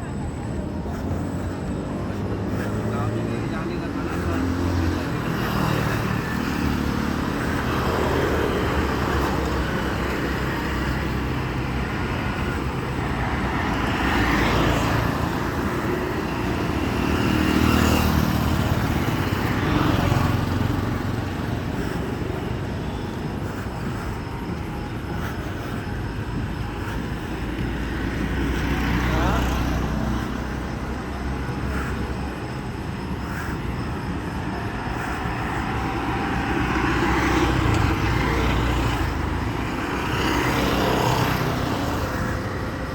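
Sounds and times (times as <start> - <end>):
road traffic rumble: 0.0 - 42.9.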